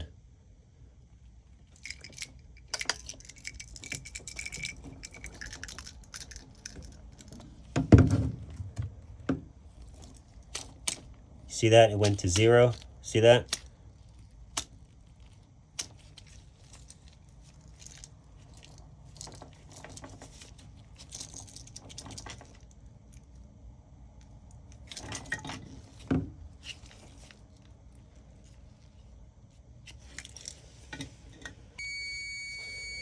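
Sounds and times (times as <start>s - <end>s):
multimeter continuity beep: 31.8s - 33.0s.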